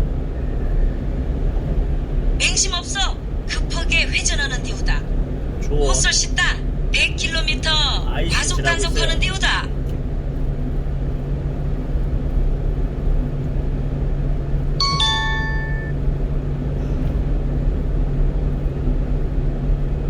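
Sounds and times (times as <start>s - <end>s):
truck engine and road drone: 0.0s - 20.0s
two-note electronic alert chime: 14.8s - 15.9s.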